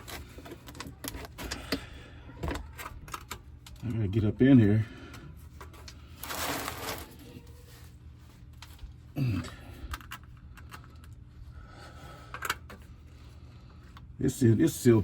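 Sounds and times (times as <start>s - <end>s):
person grunting: 9.2s - 9.7s.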